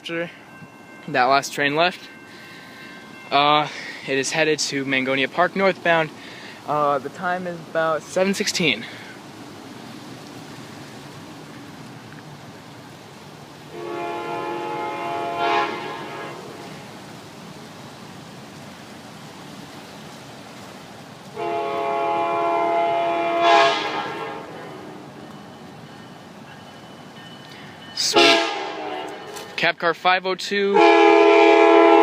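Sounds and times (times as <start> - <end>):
train horn blasts: 13.7 - 16.9, 21.3 - 25.4, 28.0 - 29.6, 30.7 - 32.0.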